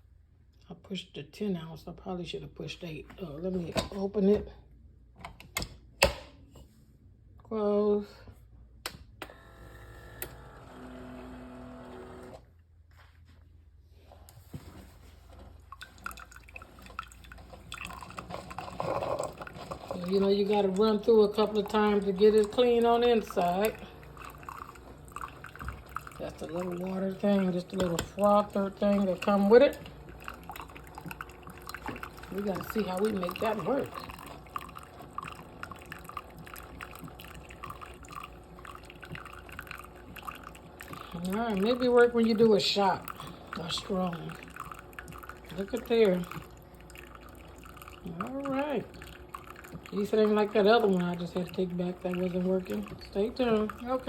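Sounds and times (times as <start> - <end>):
coffee maker humming: 9.2 - 12.5, 14.6 - 54.0
water dripping into a cup: 15.6 - 54.0.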